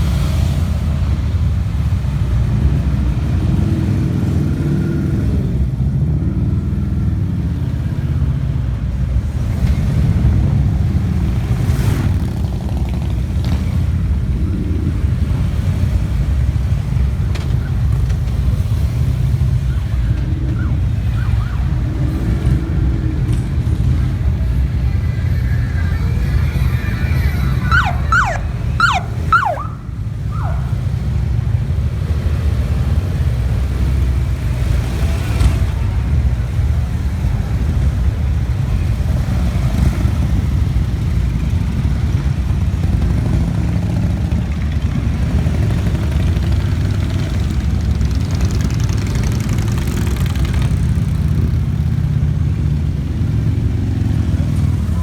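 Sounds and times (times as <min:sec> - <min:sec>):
motorcycle engines rumbling: 0:00.0 - 0:55.0
siren whooping: 0:20.4 - 0:22.1, 0:25.8 - 0:31.1.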